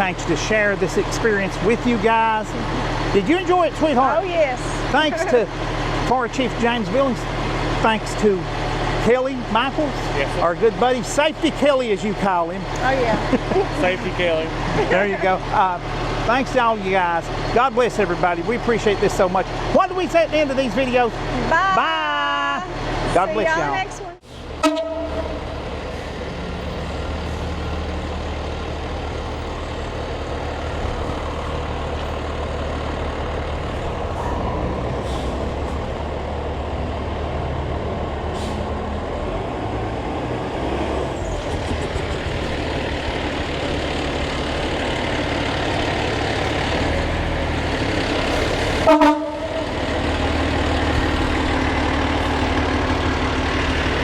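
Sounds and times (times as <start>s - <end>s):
fire truck engine running: 0.0s - 54.0s
short horn toot: 24.6s - 25.5s, 48.8s - 49.6s.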